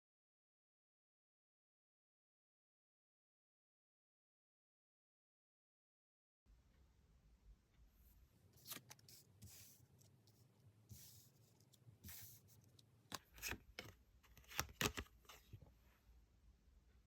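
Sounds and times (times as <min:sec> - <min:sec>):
cards rustling and clicking: 0:08.5 - 0:10.4, 0:11.0 - 0:15.7
cards snapping: 0:13.1 - 0:15.1.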